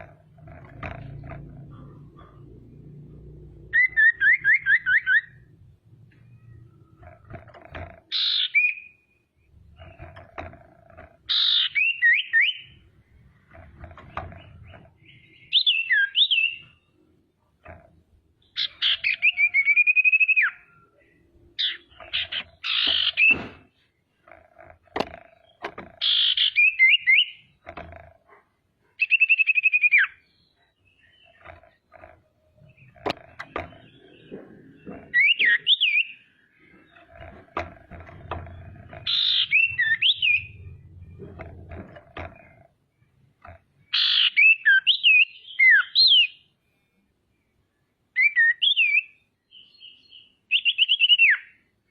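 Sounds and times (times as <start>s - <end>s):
bird whistling and trilling: 3.7s - 5.4s, 8.1s - 9.0s, 11.3s - 12.7s, 15.4s - 16.7s, 18.6s - 20.6s, 35.1s - 36.2s, 39.1s - 40.5s, 43.9s - 46.4s, 48.2s - 49.2s, 49.8s - 51.6s.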